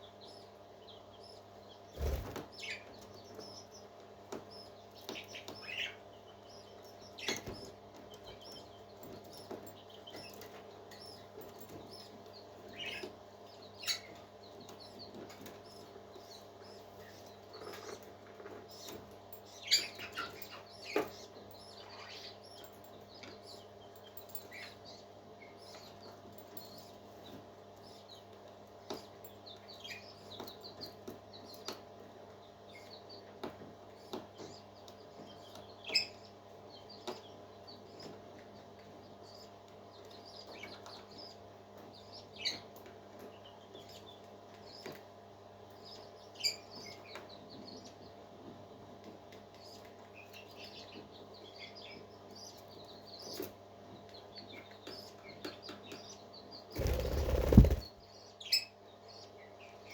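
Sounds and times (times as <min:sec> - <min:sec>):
parrot chicks peeping: 0:49.5 - 0:59.4.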